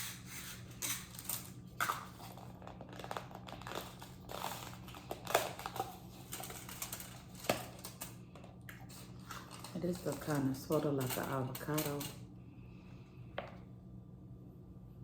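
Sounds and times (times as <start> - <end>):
crinkling: 0.8 - 12.2.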